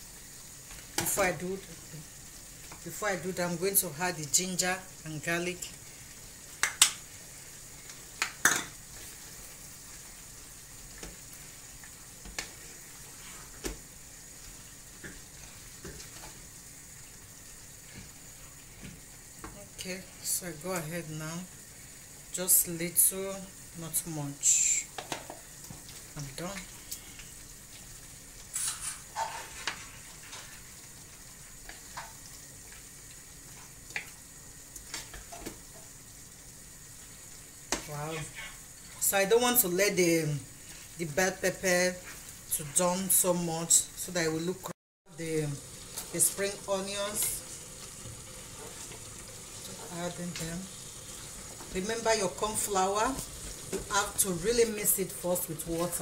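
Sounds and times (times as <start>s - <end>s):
stir fry sizzling in a pan: 0.0s - 56.0s
wooden spatula scraping a pan: 12.7s - 13.7s, 28.5s - 30.7s, 48.0s - 50.2s
spatula scraping and tapping pan: 28.5s - 30.6s.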